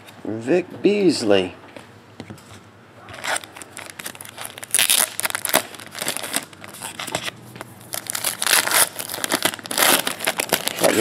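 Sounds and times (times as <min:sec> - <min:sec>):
wrappers tearing and crinkling: 0:03.1 - 0:11.0.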